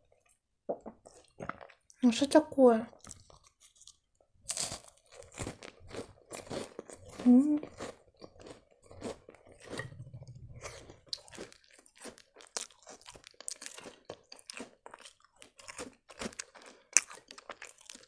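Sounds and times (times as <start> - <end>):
cookies crunching while chewed: 0.9 - 2.0, 2.9 - 18.0
wet mouth sounds: 9.6 - 11.6.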